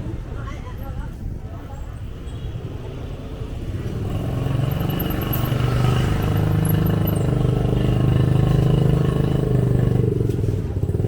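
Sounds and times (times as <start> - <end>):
motorbike engine running: 3.9 - 11.0.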